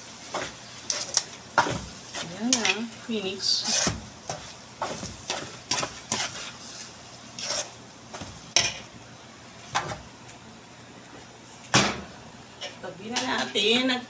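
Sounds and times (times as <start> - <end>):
spoon stirring and scraping pan: 0.0 - 9.0, 12.5 - 13.9.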